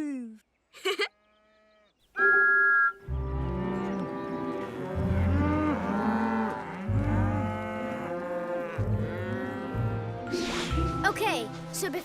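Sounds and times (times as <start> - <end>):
soft background music: 2.2 - 12.0
cartoon cows mooing: 3.1 - 10.3.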